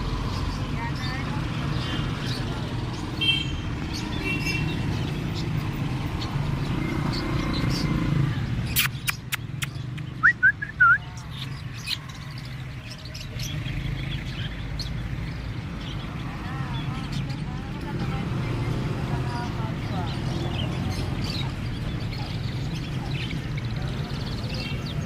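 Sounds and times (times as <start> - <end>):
sharp clicks: 8.7 - 10.2.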